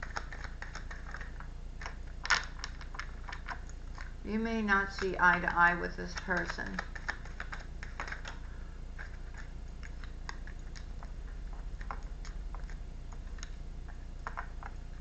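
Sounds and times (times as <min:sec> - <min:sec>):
steady low hum: 0:00.0 - 0:15.0
cards clicking and tapping: 0:05.0 - 0:08.4.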